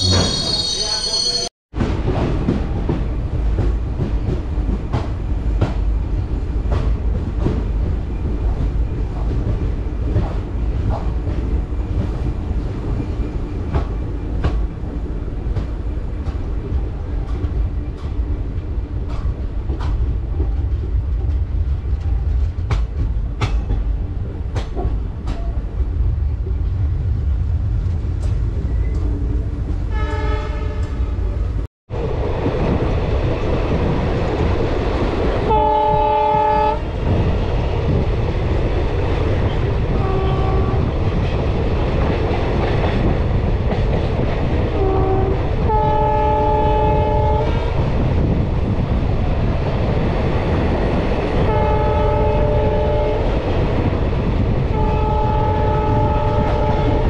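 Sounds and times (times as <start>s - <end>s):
train wheels rumbling on rails: 0.0s - 57.0s
train horn: 29.9s - 31.2s, 35.4s - 36.8s, 39.9s - 41.0s, 44.7s - 47.7s, 51.4s - 53.4s, 54.7s - 57.0s.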